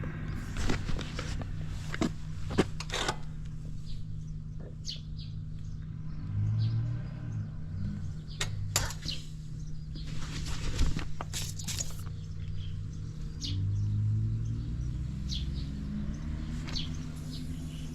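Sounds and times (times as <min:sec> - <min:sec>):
motorcycle engine idling: 0:00.0 - 0:06.2, 0:07.3 - 0:10.1.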